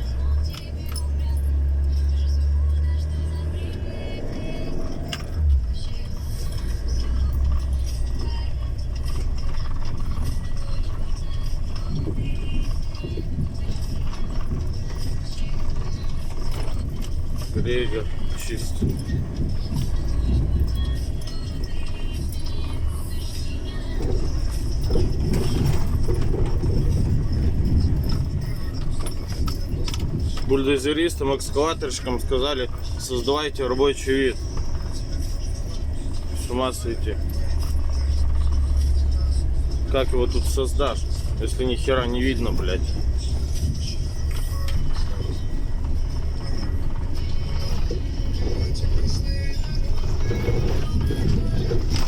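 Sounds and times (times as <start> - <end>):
vehicle bump: 0.0 - 52.0
vehicle engine droning: 0.0 - 52.0
blizzard winds: 3.3 - 33.0.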